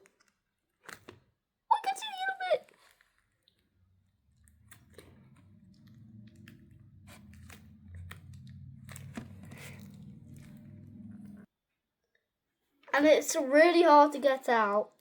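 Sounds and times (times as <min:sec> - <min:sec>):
sticky clicks and crackles: 0:00.0 - 0:11.4.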